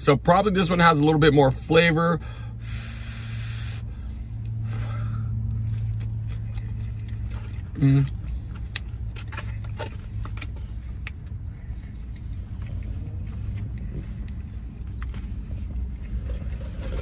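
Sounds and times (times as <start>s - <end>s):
low vehicle rumble: 0.0s - 17.0s
chewing: 5.5s - 17.0s.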